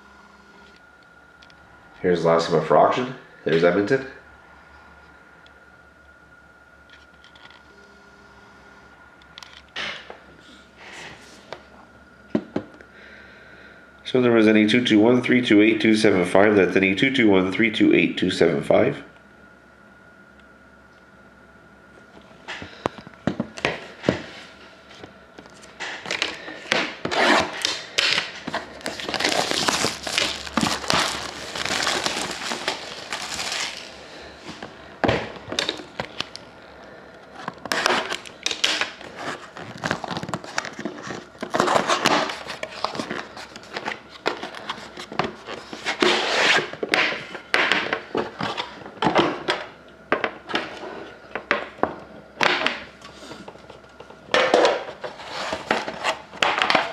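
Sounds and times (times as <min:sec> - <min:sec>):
packaging crinkling and tearing: 0:27.1 - 0:34.7, 0:37.4 - 0:46.6.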